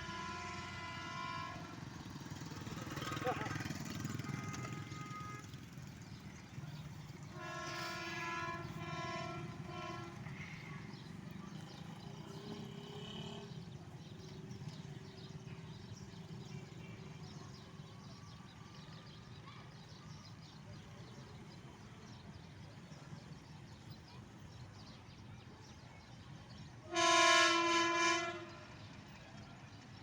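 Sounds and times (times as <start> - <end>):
locomotive horn blasts: 0.0 - 2.1, 4.1 - 5.8, 7.2 - 10.6, 26.9 - 28.9
train rumbling: 0.0 - 17.2.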